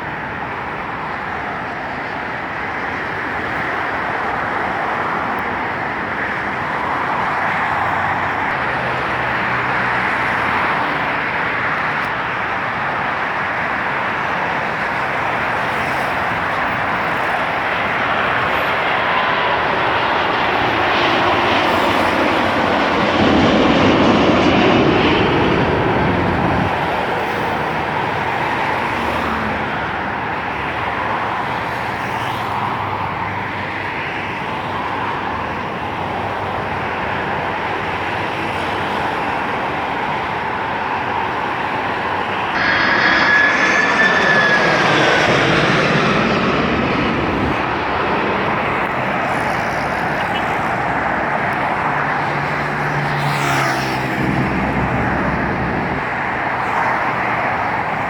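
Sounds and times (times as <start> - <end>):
high engine whine: 0.0 - 31.7, 37.4 - 58.0
jet engine roar: 0.0 - 58.0.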